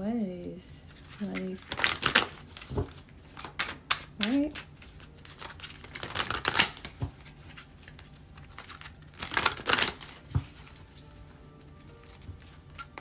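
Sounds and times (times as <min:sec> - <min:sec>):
cards rustling while shuffled: 0:00.9 - 0:13.0
cards set down knock: 0:09.3 - 0:10.7.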